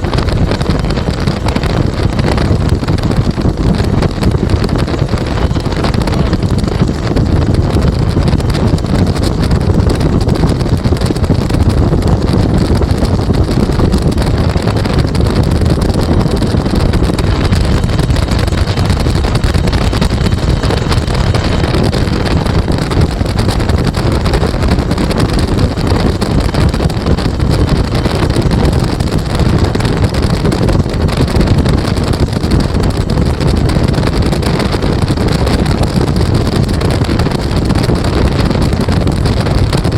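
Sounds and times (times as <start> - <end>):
helicopter engine and rotor: 0.0 - 35.0
wind buffeting microphone: 0.0 - 39.9.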